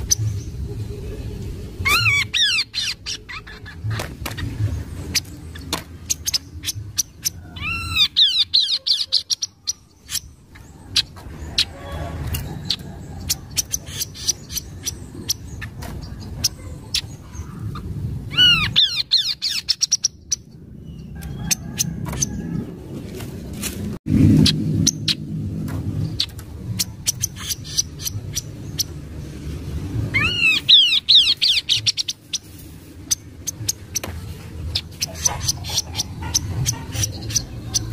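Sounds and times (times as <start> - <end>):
recorded bird calls: 0.0 - 23.2, 24.3 - 29.2, 30.1 - 37.9
low steady rumble: 0.0 - 37.9
low hum: 20.0 - 37.9.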